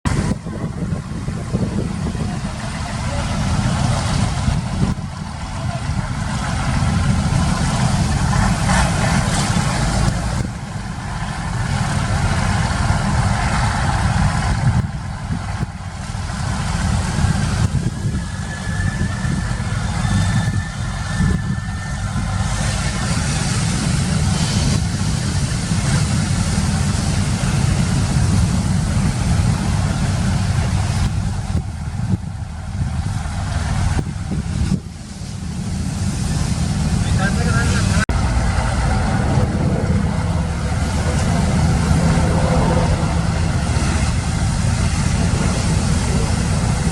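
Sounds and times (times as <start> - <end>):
wind noise: 0.0 - 46.9
boat engine running: 0.1 - 46.9
sea wash: 0.1 - 46.9.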